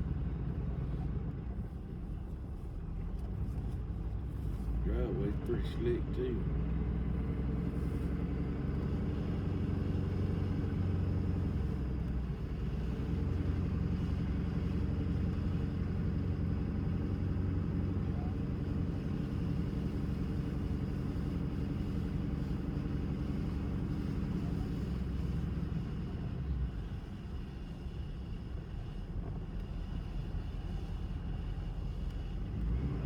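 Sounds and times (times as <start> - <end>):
road noise: 0.0 - 33.0.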